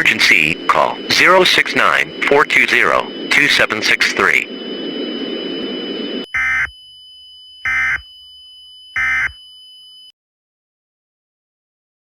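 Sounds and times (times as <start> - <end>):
digital data tone bursts: 0.0 - 6.8.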